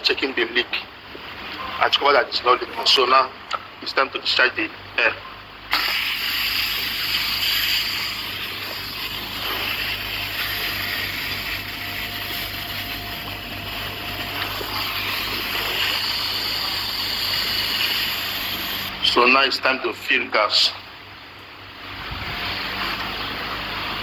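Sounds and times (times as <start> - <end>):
pressurised air hissing: 5.7 - 19.0.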